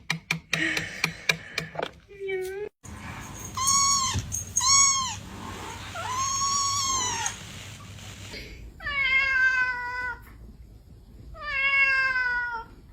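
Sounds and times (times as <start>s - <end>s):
cat meowing: 3.6s - 5.2s, 5.9s - 7.4s.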